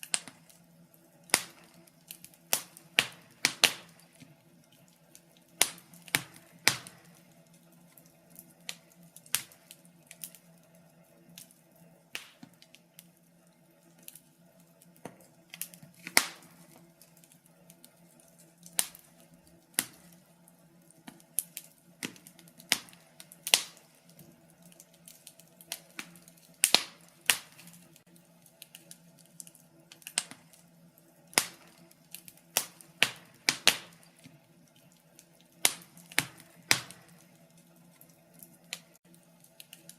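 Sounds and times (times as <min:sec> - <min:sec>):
burning timber popping: 0:00.0 - 0:39.9
wood fire crackling: 0:00.0 - 0:39.9.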